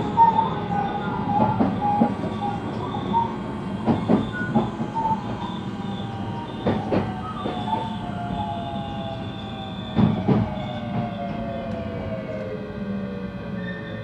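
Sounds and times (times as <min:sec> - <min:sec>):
wheels clacking over rail joints: 0:00.0 - 0:08.4
train rolling rumble: 0:00.0 - 0:14.0.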